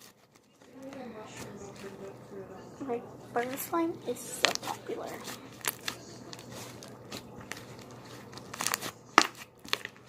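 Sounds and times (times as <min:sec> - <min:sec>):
slime squished in hands: 0:04.4 - 0:10.0.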